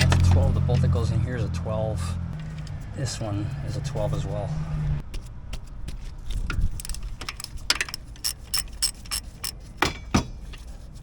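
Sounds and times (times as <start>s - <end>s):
ratchet wrench clicking: 6.7s - 9.6s
metal clinks: 6.8s - 10.2s.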